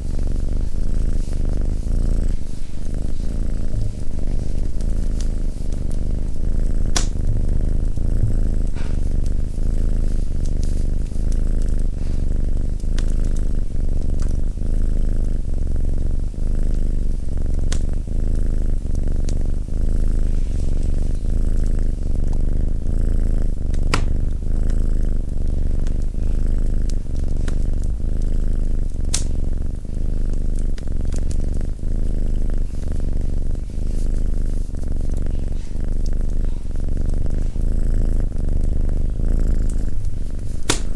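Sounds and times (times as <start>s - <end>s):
cat purring loudly: 0.0s - 40.9s
wood fire crackling: 29.0s - 34.7s, 39.0s - 40.9s.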